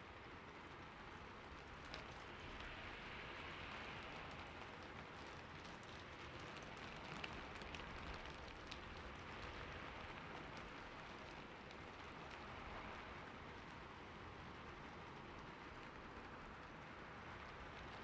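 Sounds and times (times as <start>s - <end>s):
rain falling on a roof: 0.0s - 18.0s
raindrop ticks: 1.4s - 2.9s, 3.5s - 13.9s.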